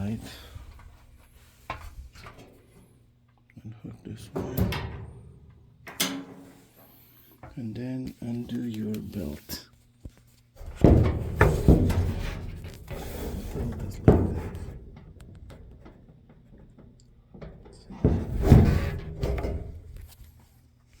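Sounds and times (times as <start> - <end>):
metal parts clunking and rattling: 4.3 - 7.6, 10.6 - 20.4.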